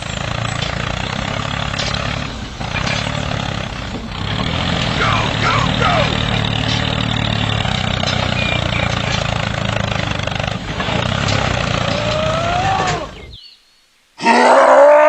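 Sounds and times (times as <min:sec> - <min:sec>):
vehicle motor humming: 0:00.0 - 0:13.4.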